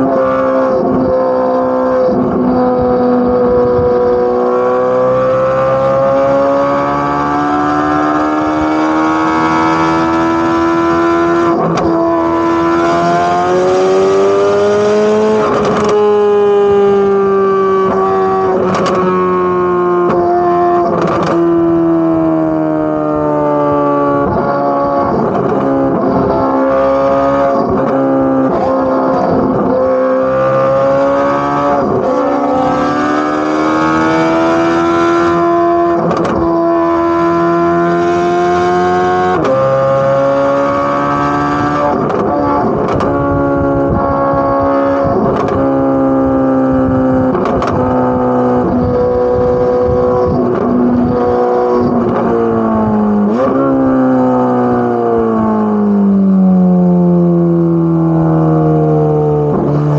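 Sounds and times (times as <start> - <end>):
sports car exhaust at high revs: 0.0 - 59.9
exhaust cracks: 18.5 - 19.0, 20.8 - 21.6, 35.9 - 36.6, 41.8 - 45.8.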